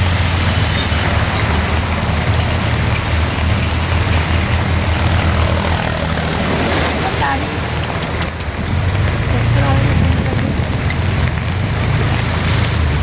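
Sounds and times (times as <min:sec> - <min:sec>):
heavy rain falling: 0:00.0 - 0:13.0
vehicle engine running: 0:00.0 - 0:13.0.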